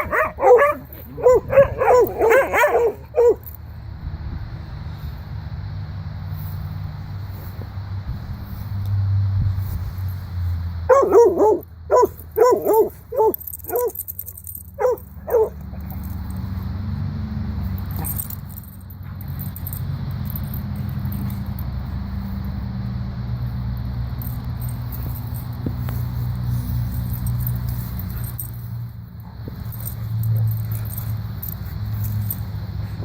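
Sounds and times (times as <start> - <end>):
dog barking: 0.0 - 3.4, 10.9 - 14.0, 14.8 - 16.0
steady low rumble: 0.0 - 5.4.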